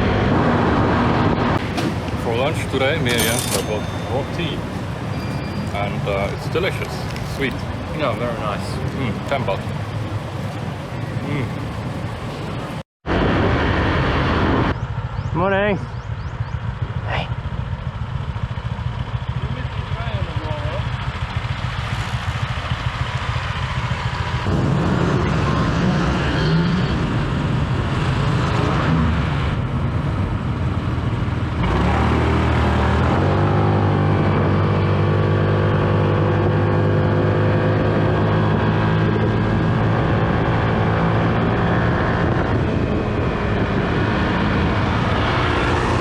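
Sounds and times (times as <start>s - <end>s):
motorbike engine droning: 0.0s - 27.4s.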